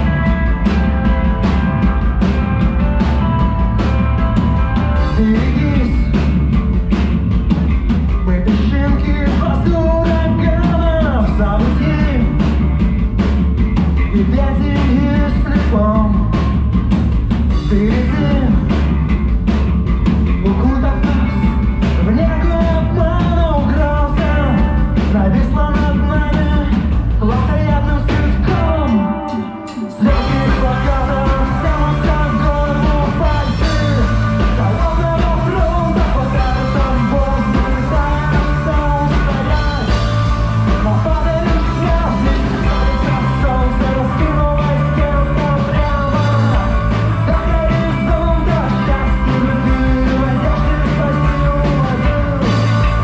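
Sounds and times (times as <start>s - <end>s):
drum kit: 0.0s - 53.0s
rock band playing live: 0.0s - 53.0s
person singing: 2.8s - 6.3s, 20.4s - 53.0s.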